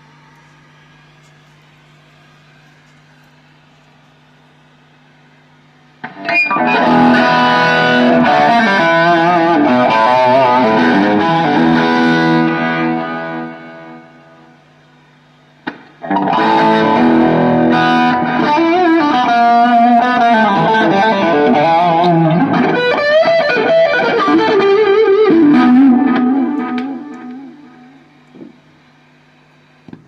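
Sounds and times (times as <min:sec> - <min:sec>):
amplifier hum: 0:00.0 - 0:30.0
distorted electric guitar lead: 0:06.0 - 0:29.0
click: 0:26.6 - 0:27.4.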